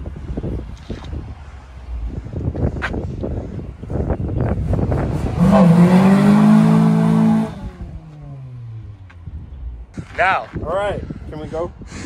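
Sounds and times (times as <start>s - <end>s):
car engine revving: 4.5s - 9.6s.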